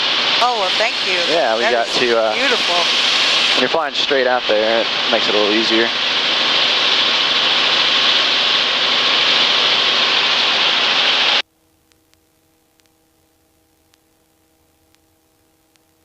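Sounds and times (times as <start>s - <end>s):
faint steady hum: 0.0s - 16.0s
helicopter cabin hiss: 0.4s - 11.4s
tiny ticks: 11.9s - 13.0s, 13.8s - 16.0s.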